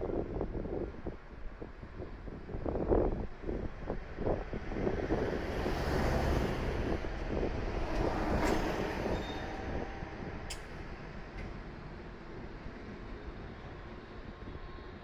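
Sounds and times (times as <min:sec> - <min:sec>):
high-speed train rushing past: 0:04.6 - 0:15.0
sharp click: 0:10.5 - 0:10.8.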